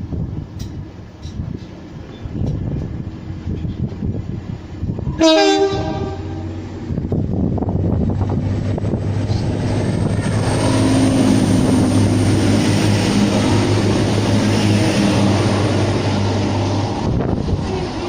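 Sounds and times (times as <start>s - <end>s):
rail and wheel noise: 0.0s - 18.0s
train engine hum: 0.0s - 18.0s.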